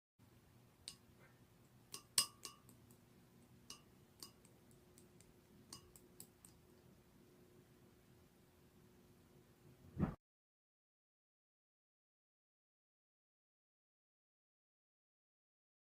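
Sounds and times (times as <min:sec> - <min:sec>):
faint steady hum: 0:00.2 - 0:10.0.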